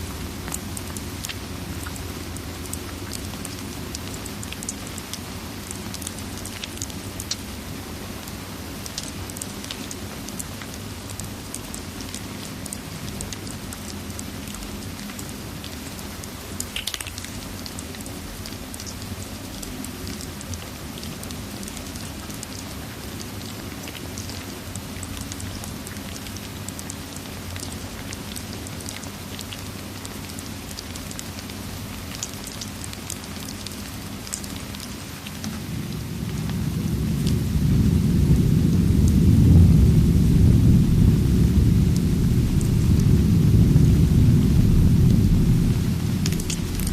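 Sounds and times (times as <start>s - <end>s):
small crackles and ticks: 0.0s - 35.6s, 46.2s - 46.9s
steady rain: 0.0s - 46.9s
thunder rumble: 35.2s - 46.9s.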